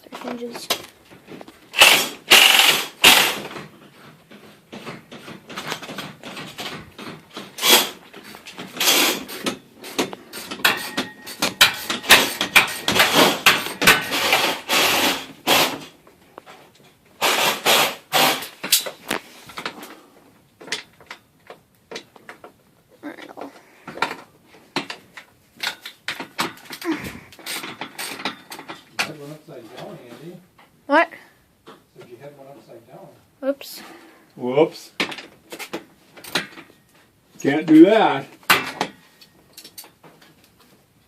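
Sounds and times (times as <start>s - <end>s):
garage door hardware clanking: 4.3s - 16.0s.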